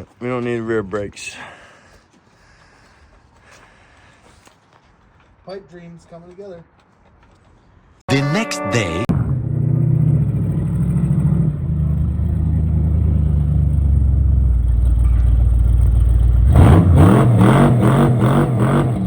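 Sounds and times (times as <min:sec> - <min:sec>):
engine running and revving: 0:09.1 - 0:19.0.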